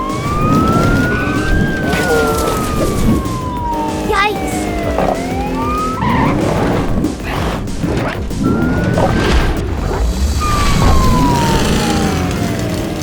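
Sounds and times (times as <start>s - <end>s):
background music: 0.0s - 13.0s
long gliding tones: 8.3s - 13.0s.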